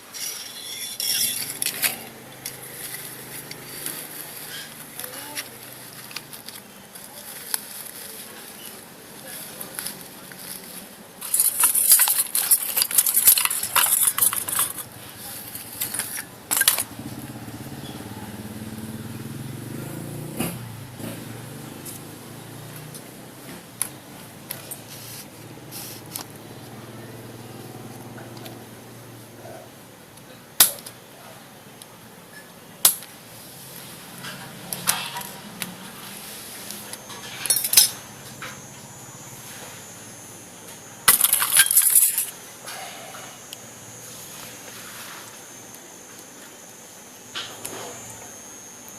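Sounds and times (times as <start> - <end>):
small metal parts clinking: 0.1 - 6.6, 9.4 - 17.0, 36.9 - 38.1, 41.1 - 42.4.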